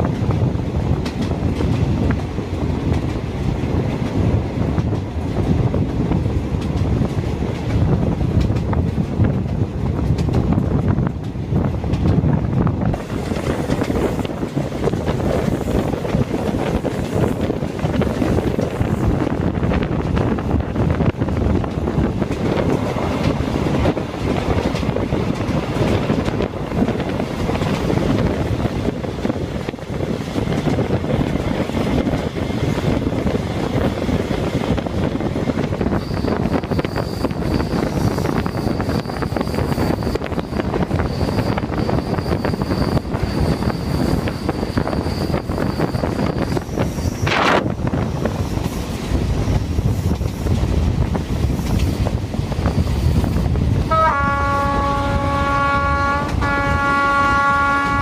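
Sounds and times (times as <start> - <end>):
diesel train rumbling: 0.0 - 58.0
wind buffeting microphone: 0.0 - 58.0
high-pitched squeal: 35.9 - 47.6.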